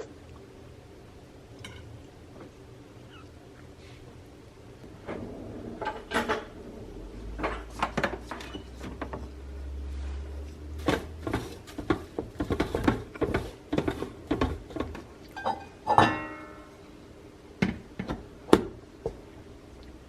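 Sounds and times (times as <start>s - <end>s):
dishes and utensils clattering: 5.2s - 6.6s, 7.3s - 9.2s, 10.8s - 16.7s.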